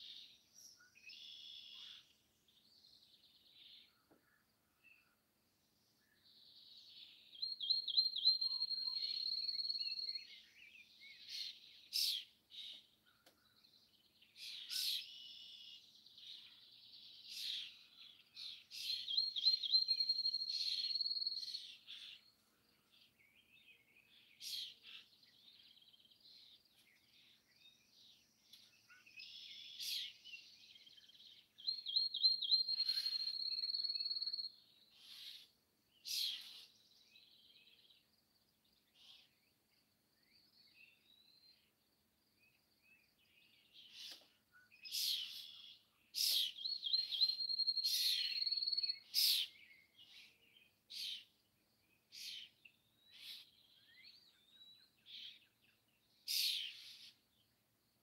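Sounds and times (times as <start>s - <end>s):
bird song with long trill: 0.0s - 57.6s
birds chirping: 42.5s - 57.5s.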